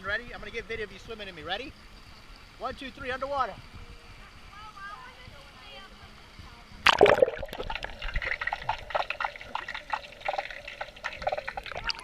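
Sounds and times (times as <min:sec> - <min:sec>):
underwater bubbling and gurgling: 0:06.8 - 0:12.0.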